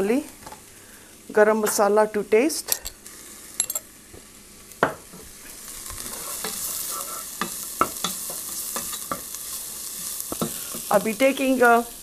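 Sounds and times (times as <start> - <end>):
vegetables sizzling in oil: 0.0 - 12.0
wooden spatula scraping a pot: 6.0 - 7.5.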